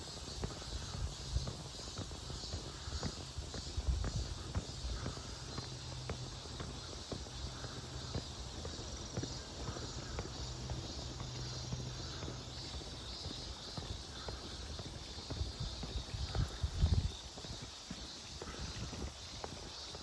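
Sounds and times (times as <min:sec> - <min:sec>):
footsteps on paved road: 0:00.0 - 0:20.0
insects chirring: 0:00.0 - 0:20.0.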